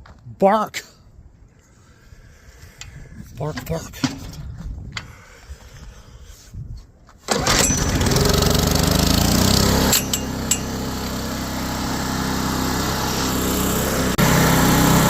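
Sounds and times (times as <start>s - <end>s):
generator engine running: 7.3s - 15.0s.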